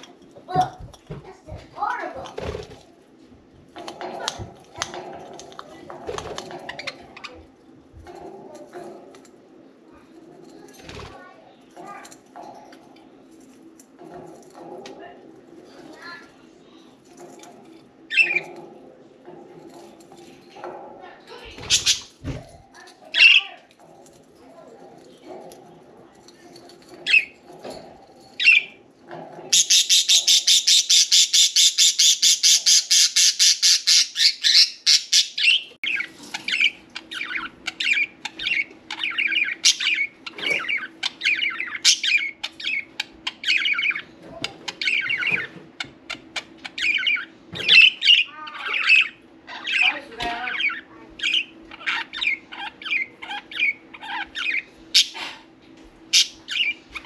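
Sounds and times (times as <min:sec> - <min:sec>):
budgerigars chirping and chattering: 0:03.8 - 0:07.5, 0:18.1 - 0:18.7, 0:21.4 - 0:22.1, 0:27.0 - 0:27.8, 0:28.4 - 0:28.8, 0:29.4 - 0:55.5, 0:56.1 - 0:57.0.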